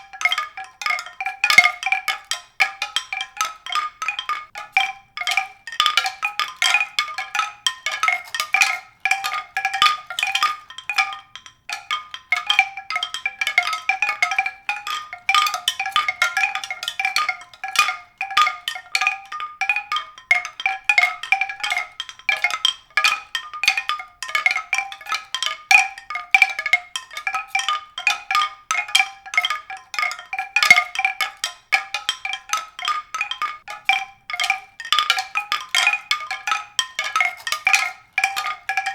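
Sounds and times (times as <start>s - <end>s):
mallet percussion music: 0.0s - 38.9s.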